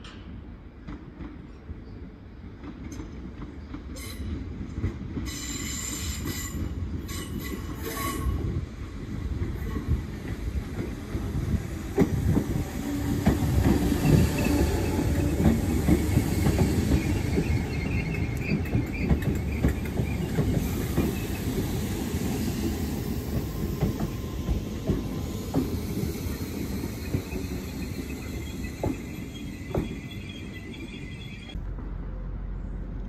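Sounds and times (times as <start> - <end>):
electric train running past: 2.7 - 33.0
wheels clicking over rail joints: 11.9 - 21.8.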